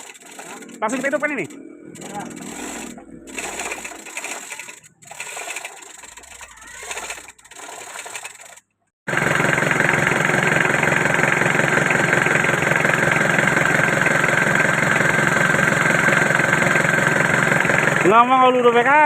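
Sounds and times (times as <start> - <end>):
irregular mechanical noises: 0.0 - 8.9
engine idling: 0.0 - 19.0.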